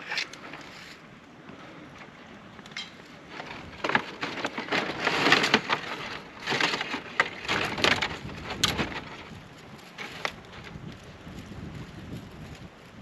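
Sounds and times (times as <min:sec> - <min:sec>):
dry wood cracking and splintering: 0:00.0 - 0:12.7.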